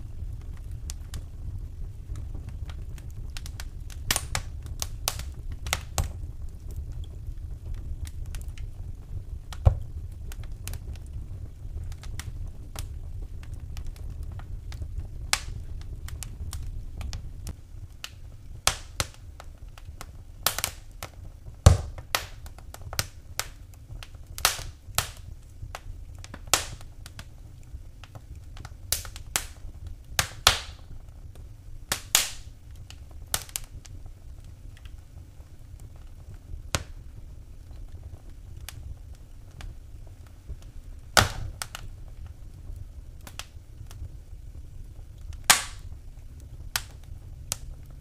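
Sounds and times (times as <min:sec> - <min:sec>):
wood fire crackling and popping: 0:00.0 - 0:48.0.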